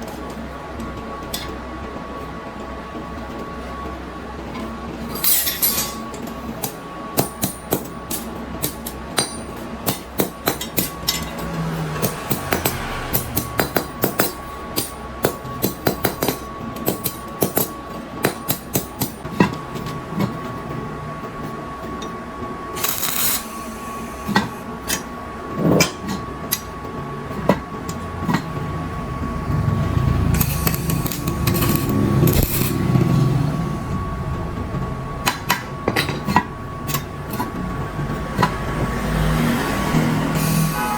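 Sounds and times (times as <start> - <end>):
hammer striking metal: 8.6 - 19.2
rushing noise with low rumble: 10.9 - 14.7, 26.8 - 40.9.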